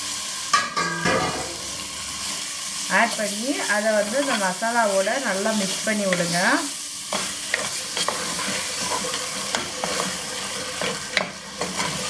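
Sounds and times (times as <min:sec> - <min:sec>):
chicken sizzling in oil: 0:00.0 - 0:12.0
wooden spoon scraping pot: 0:07.1 - 0:12.0.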